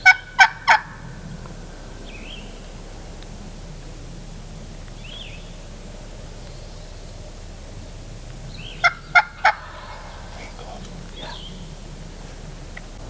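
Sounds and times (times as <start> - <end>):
wild turkey calling: 0.0 - 3.7, 4.8 - 13.0
faint songbird chirps: 1.1 - 3.2, 4.7 - 13.0.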